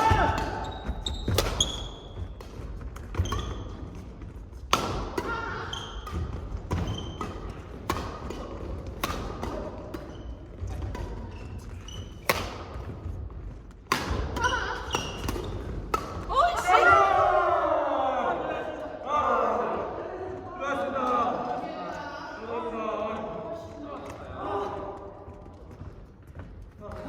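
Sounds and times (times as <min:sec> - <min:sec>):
shoes squeaking on court floor: 0:00.5 - 0:04.4, 0:05.7 - 0:07.8, 0:09.8 - 0:13.7
racket striking shuttlecock: 0:04.6 - 0:11.3, 0:12.2 - 0:12.8, 0:13.8 - 0:16.3.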